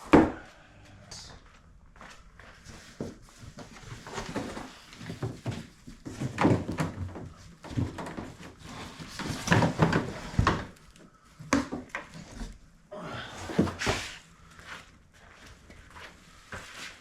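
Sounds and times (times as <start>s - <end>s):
cardboard rustling: 2.5s - 11.0s
cardboard scraping: 2.6s - 6.7s, 7.6s - 10.8s.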